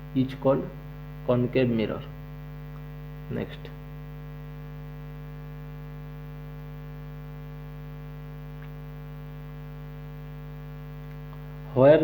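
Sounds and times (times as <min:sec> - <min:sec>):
electrical mains hum: 0:00.0 - 0:12.0
faint click: 0:08.6 - 0:08.8.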